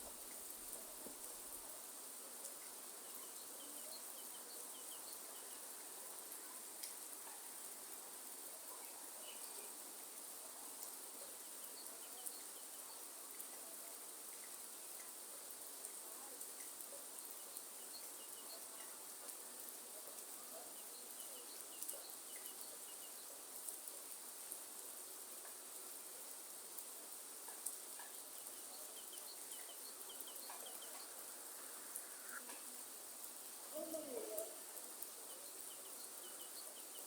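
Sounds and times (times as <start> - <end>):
rain hiss: 0.0 - 37.0
short bird chirps: 29.6 - 32.5.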